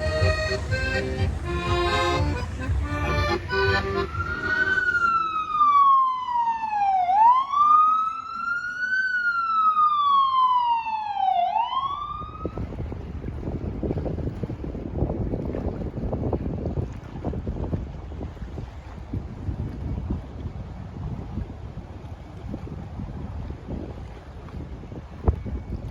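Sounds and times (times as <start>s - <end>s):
music: 0.0s - 4.8s
emergency vehicle siren wailing: 4.0s - 12.6s.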